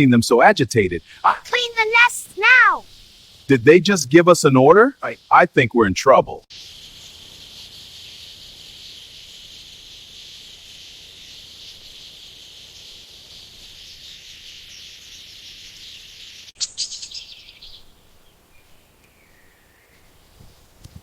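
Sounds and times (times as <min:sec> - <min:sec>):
canaries chirping: 0:01.2 - 0:02.9.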